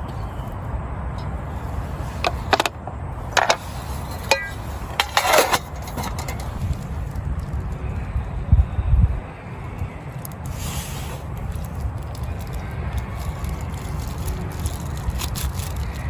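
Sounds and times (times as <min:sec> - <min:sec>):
wind: 0:00.0 - 0:16.0
rustling clatter: 0:02.0 - 0:07.2
scattered clicks and knocks: 0:02.2 - 0:03.6.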